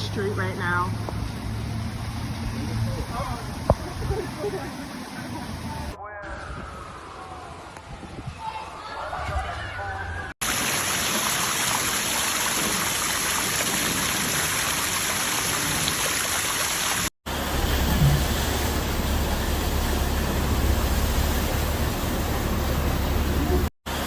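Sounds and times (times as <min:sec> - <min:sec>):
water rushing through streets: 0:00.0 - 0:06.0, 0:10.4 - 0:24.0
low rumble: 0:17.4 - 0:23.7.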